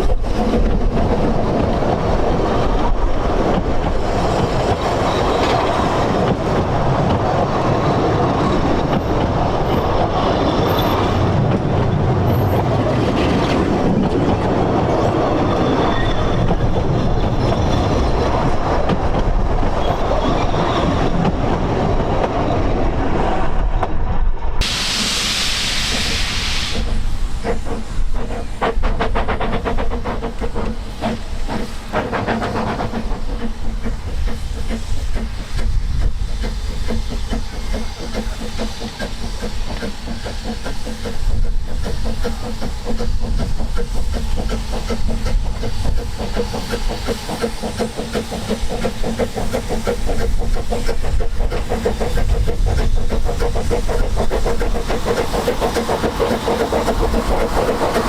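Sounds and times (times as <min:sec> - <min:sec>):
steam train rumbling: 0:00.0 - 0:58.0
loud hiss of steam: 0:24.6 - 0:58.0.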